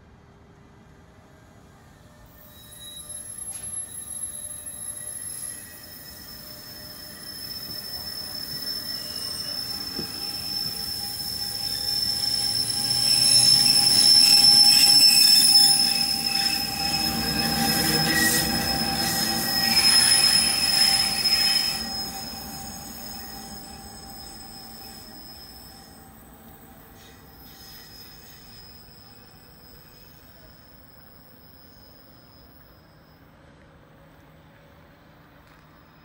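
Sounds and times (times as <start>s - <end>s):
wheels squealing: 2.4s - 33.3s
train rumble: 4.8s - 25.2s.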